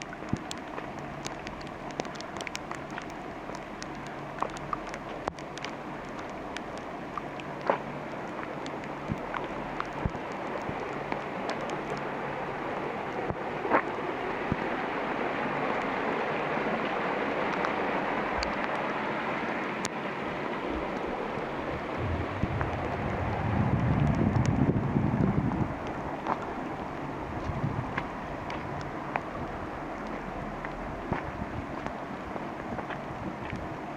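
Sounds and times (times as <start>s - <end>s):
steady rain hiss: 0.0s - 33.9s
raindrop hits: 21.8s - 25.9s.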